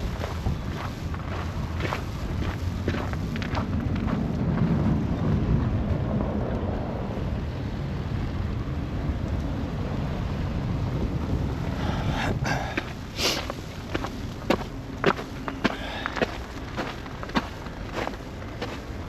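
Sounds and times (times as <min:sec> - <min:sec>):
footsteps crunching in snow: 0:00.0 - 0:04.3, 0:11.7 - 0:19.0
storm wind buffeting microphone: 0:00.0 - 0:19.0.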